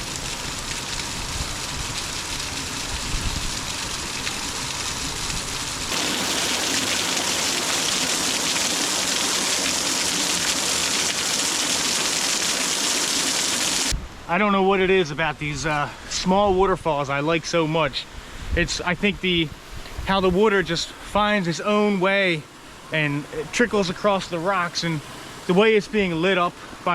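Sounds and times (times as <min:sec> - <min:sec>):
water rushing over rocks: 0:05.9 - 0:13.9.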